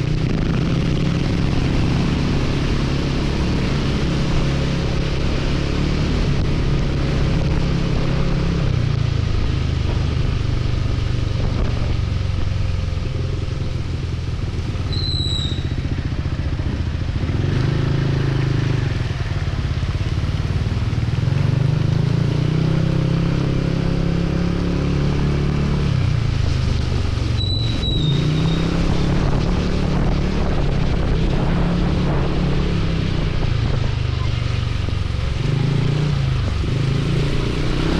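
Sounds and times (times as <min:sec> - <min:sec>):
motorcycle engine revving: 0:00.0 - 0:37.9
wind and rain noise: 0:00.0 - 0:37.9
short high chirps: 0:14.9 - 0:15.8.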